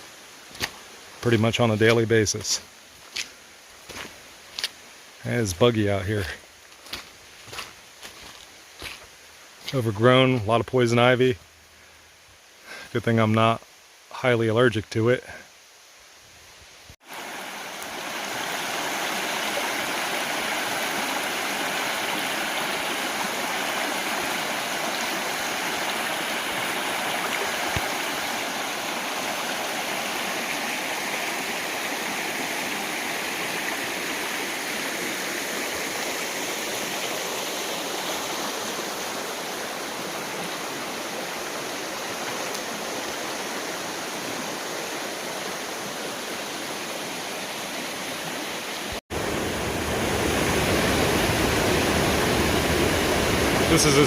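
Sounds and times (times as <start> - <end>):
whitewater rushing over waterfall: 49.2 - 54.0.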